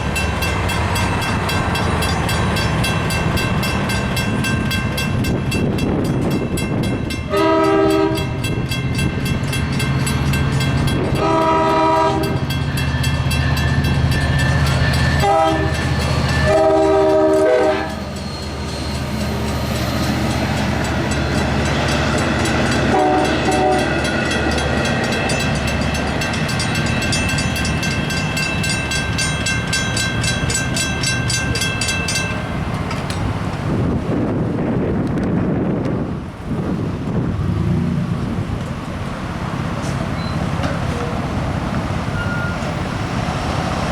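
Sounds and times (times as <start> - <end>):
crossing bell ringing: 0.0 - 33.4, 40.1 - 41.3, 42.1 - 42.9
diesel train rumble: 0.0 - 43.9
locomotive horn: 7.3 - 8.4, 11.1 - 12.5, 15.0 - 18.1, 22.7 - 24.2.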